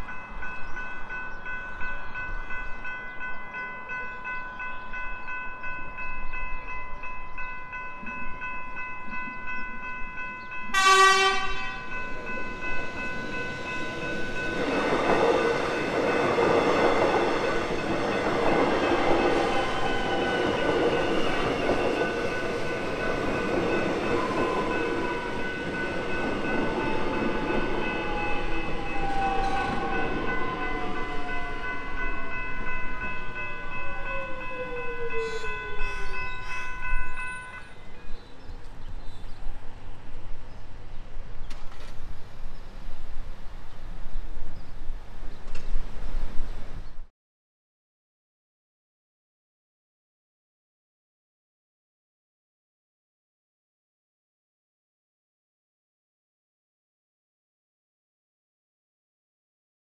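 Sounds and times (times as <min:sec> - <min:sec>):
level crossing bells ringing: 0:00.0 - 0:37.9
short train horn blast: 0:10.7 - 0:12.0.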